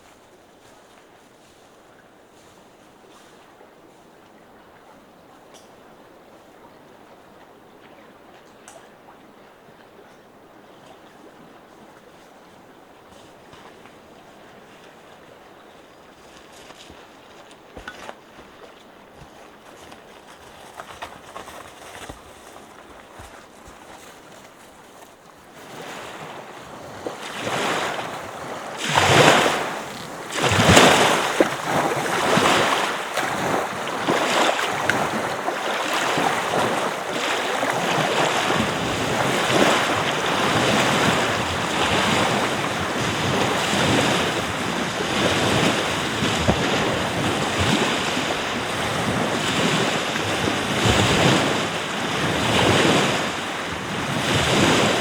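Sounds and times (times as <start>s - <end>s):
surf washing onto beach: 25.5s - 55.0s.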